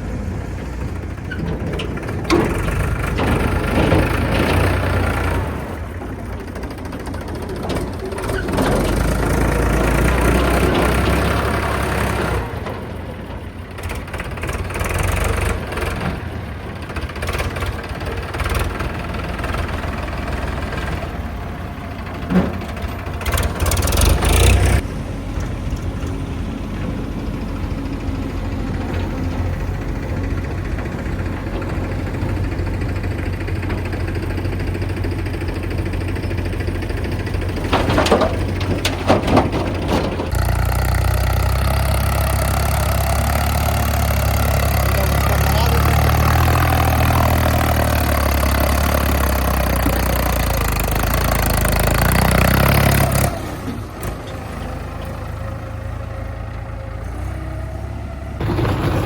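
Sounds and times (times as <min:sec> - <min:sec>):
heavy diesel engine running: 0:00.0 - 0:59.0
clattering: 0:37.2 - 0:40.9, 0:58.4 - 0:59.0.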